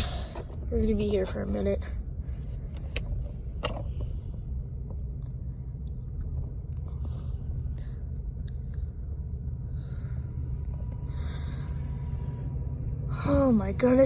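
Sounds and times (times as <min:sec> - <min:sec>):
train passing rumble: 0:03.2 - 0:14.0.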